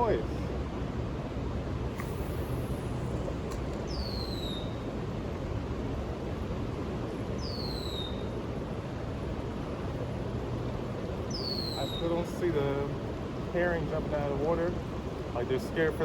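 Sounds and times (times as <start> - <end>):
bird whistled call: 3.9 - 4.9, 7.4 - 8.4, 11.3 - 12.2.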